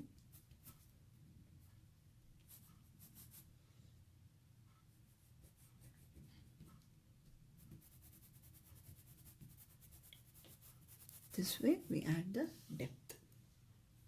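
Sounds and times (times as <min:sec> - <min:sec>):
pencils scratching on paper: 0:07.6 - 0:12.2.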